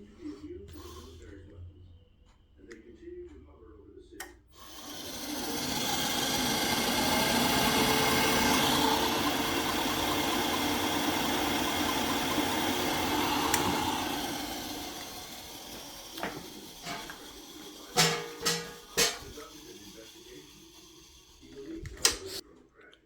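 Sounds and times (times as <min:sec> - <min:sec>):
boiler fan spinning: 0:04.6 - 0:22.4.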